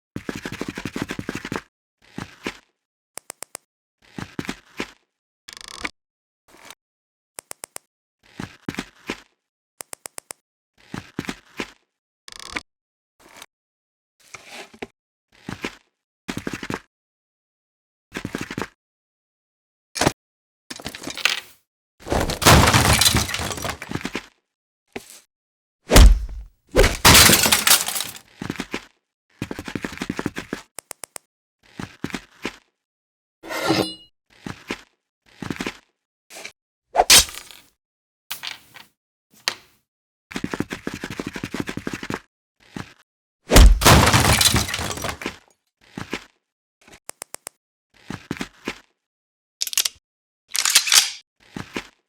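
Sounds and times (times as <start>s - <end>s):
glass smashing: 22.1s - 23.9s, 25.9s - 28.2s, 43.5s - 45.3s
debris clattering: 22.1s - 24.0s, 26.0s - 28.2s, 43.5s - 45.3s
loud crash of something breaking: 22.1s - 24.0s, 25.9s - 28.2s, 43.5s - 45.3s
heavy thump: 25.9s - 27.2s, 43.5s - 44.2s.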